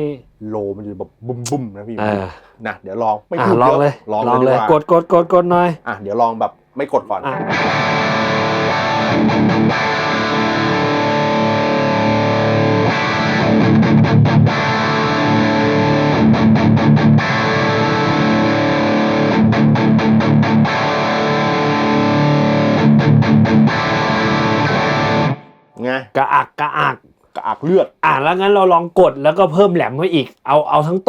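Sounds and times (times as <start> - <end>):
distorted electric guitar chords: 7.3 - 25.7.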